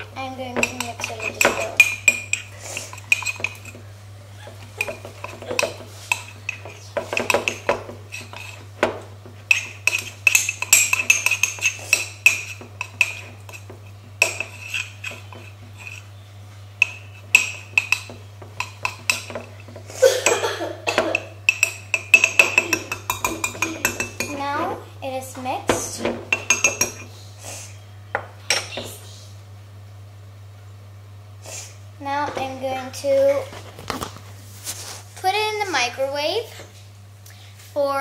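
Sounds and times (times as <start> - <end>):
spoon clinking and scraping in mug: 0.6 - 3.8, 9.5 - 16.1.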